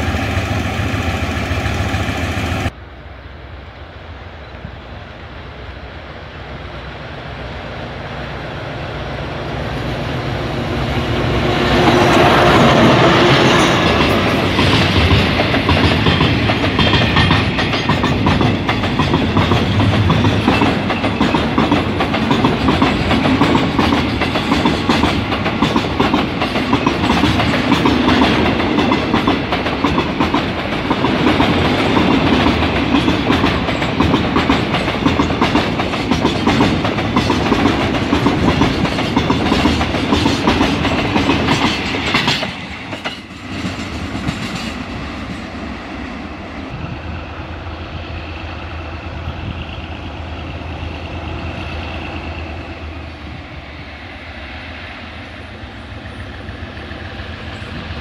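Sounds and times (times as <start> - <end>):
diesel locomotive engine: 0.0 - 58.0
train wheels clickety-clack: 10.7 - 46.9.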